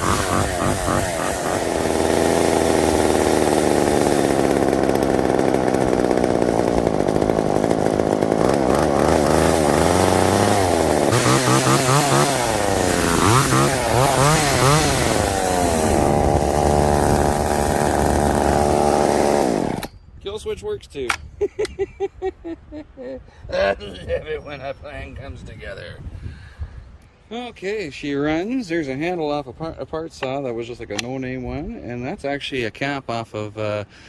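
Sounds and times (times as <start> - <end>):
two-stroke chainsaw engine revving: 0.0 - 19.9.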